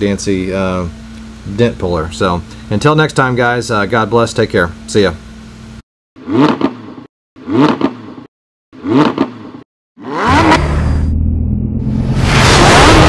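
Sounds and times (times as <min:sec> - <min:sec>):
car engine revving: 0:08.8 - 0:13.0.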